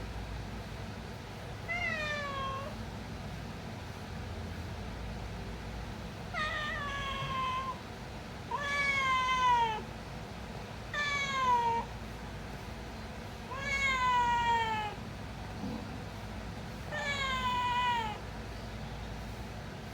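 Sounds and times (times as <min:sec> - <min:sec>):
cat meowing: 0:01.7 - 0:02.8, 0:06.3 - 0:07.8, 0:08.5 - 0:09.9, 0:10.9 - 0:11.9, 0:13.5 - 0:15.0, 0:16.9 - 0:18.2.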